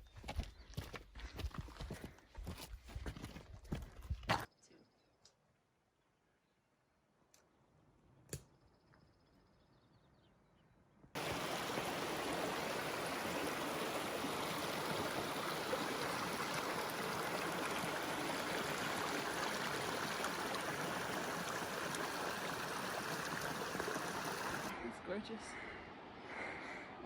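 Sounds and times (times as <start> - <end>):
mountain stream rushing: 11.2 - 24.8.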